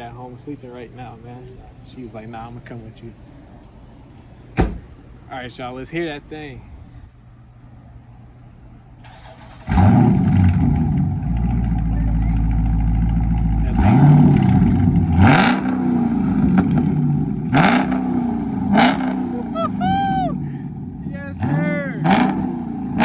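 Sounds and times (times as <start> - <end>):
car engine starting and revving: 9.0 - 19.8, 20.7 - 23.0.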